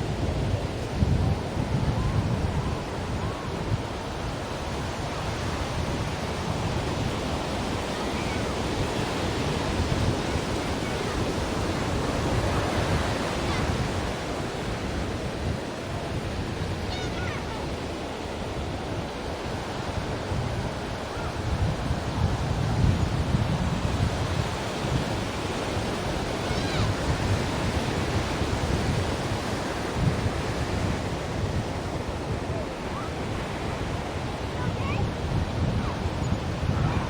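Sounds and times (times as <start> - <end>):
ocean waves breaking on shore: 0.0 - 37.0.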